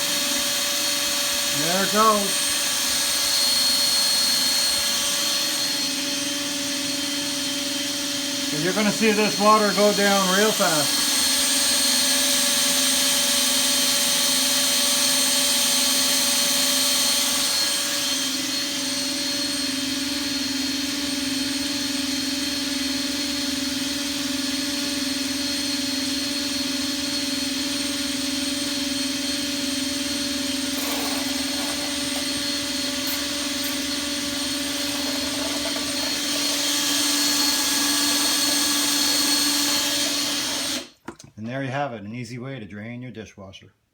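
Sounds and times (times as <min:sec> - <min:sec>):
power drill pump whining: 0:00.0 - 0:20.9, 0:23.1 - 0:41.1.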